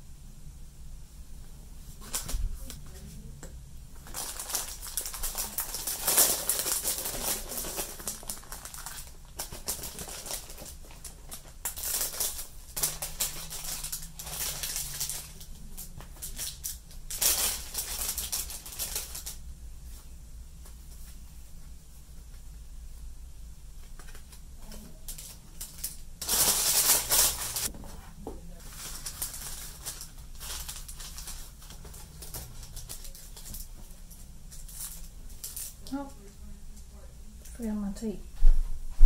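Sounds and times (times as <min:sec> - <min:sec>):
paper rustling and crinkling: 0:01.9 - 0:03.1, 0:04.0 - 0:19.4, 0:23.8 - 0:35.8.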